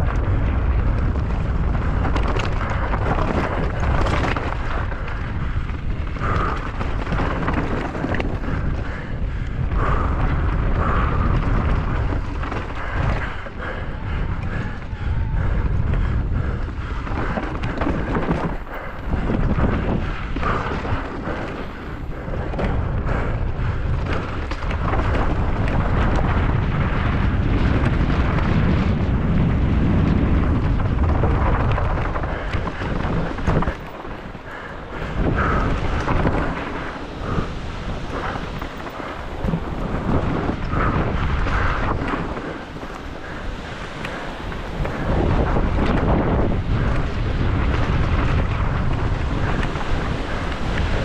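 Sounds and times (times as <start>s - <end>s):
bike clattering over rough ground: 0.0s - 51.0s
wind buffeting microphone: 0.0s - 51.0s.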